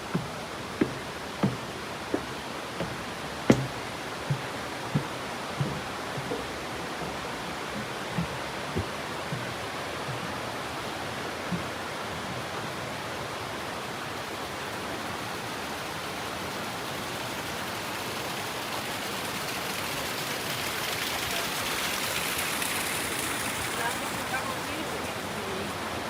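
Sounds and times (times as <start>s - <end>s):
water rushing: 0.0s - 26.0s
soft knocks: 0.1s - 11.8s.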